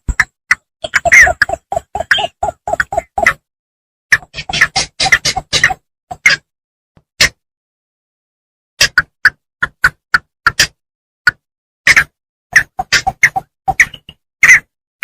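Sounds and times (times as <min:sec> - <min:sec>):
bittern calls: 0:00.8 - 0:03.4.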